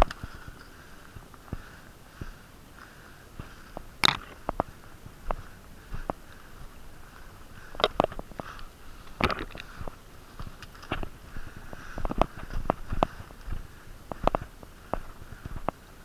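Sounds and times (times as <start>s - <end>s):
heavy breathing through nose: 0.2s - 10.6s, 11.2s - 15.7s
sharp clicks and knocks: 4.0s - 4.7s, 7.8s - 8.2s.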